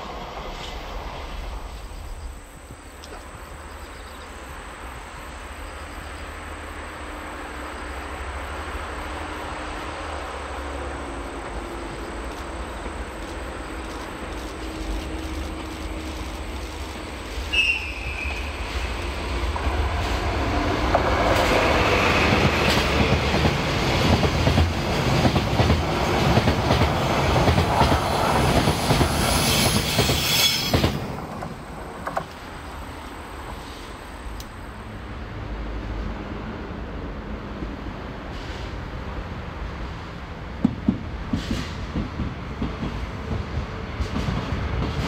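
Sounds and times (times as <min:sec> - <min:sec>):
diesel locomotive engine: 0:00.0 - 0:45.0
high-pitched wheel squeal: 0:17.5 - 0:18.6, 0:29.2 - 0:31.1.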